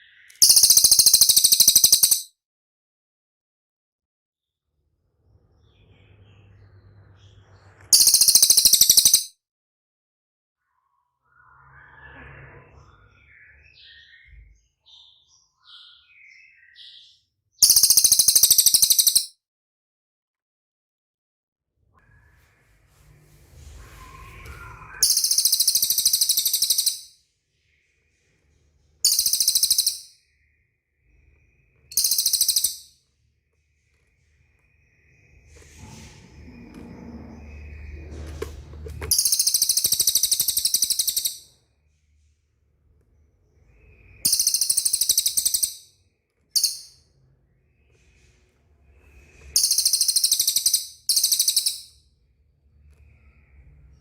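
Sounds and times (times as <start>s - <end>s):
bird calling with high trills: 0.0s - 2.3s, 7.9s - 9.3s, 17.6s - 19.3s, 24.0s - 27.1s, 29.0s - 30.2s, 31.9s - 33.0s, 39.1s - 41.6s, 43.8s - 45.9s, 49.5s - 52.0s.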